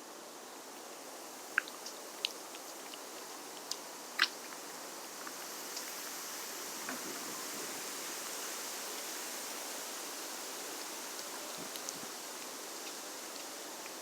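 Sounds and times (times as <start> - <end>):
faint ticks: 1.5 - 4.6, 11.1 - 14.0.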